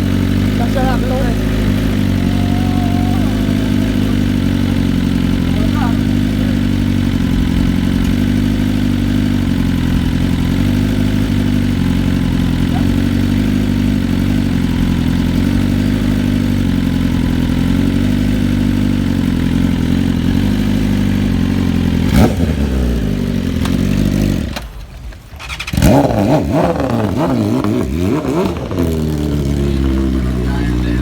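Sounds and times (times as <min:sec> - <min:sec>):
motorcycle engine idling and revving: 0:00.0 - 0:31.0
exhaust pop: 0:07.2 - 0:08.5, 0:22.0 - 0:29.1.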